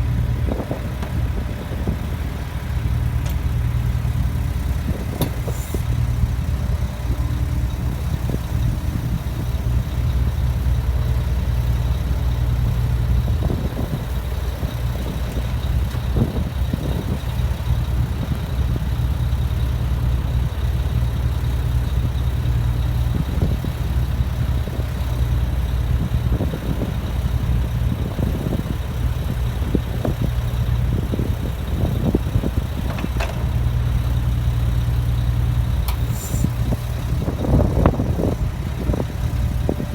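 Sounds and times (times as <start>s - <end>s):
heavy machine engine running: 0.0s - 39.9s
knocks and clatter of digging: 32.7s - 33.9s.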